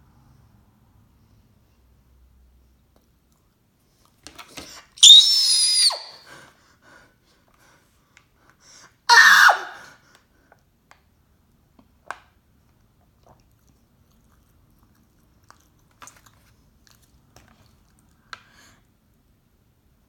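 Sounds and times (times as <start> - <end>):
person chewing with mouth clicks: 13.0 - 18.4.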